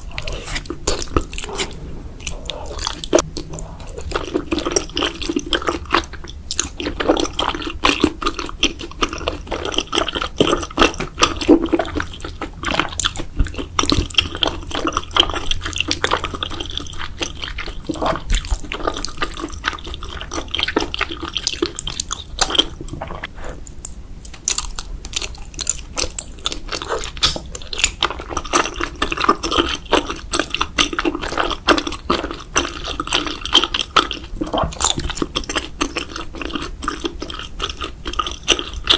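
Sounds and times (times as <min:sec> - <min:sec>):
wet chewing: 0:00.0 - 0:38.9
sticky mouth clicks: 0:27.1 - 0:28.7.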